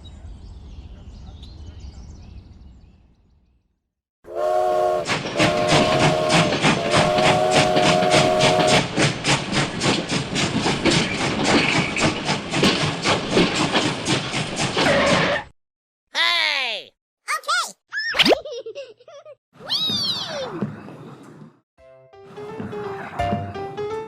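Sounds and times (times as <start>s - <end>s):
steam whistle: 4.3s - 8.9s
steam locomotive chuffing: 4.3s - 14.8s.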